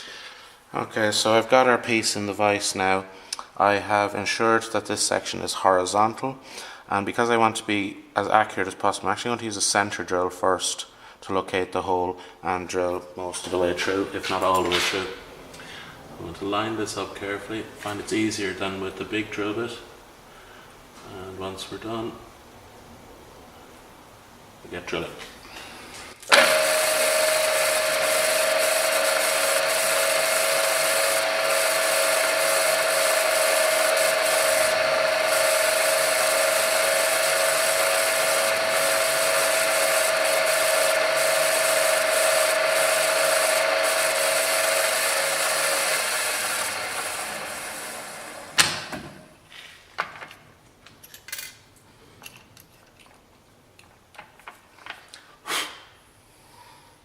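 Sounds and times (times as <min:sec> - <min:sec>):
electric drill whining: 0:26.3 - 0:48.6.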